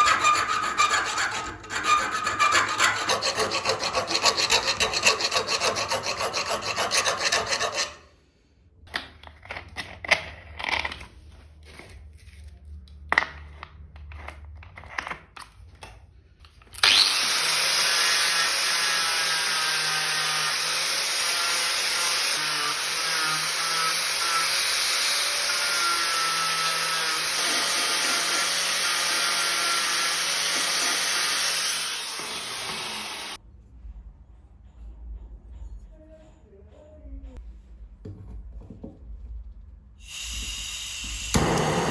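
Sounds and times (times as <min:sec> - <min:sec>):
file rasping on steel: 0:00.0 - 0:08.1
power tool running: 0:16.8 - 0:33.4, 0:40.1 - 0:41.9.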